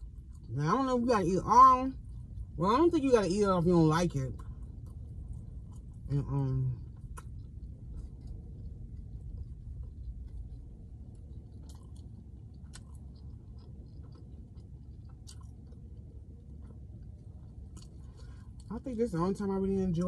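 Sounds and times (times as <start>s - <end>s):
person chewing food: 0.0s - 0.6s, 1.9s - 2.6s, 4.2s - 18.7s
steady low rumble: 0.0s - 20.0s
lip and teeth clicks: 6.8s - 18.7s.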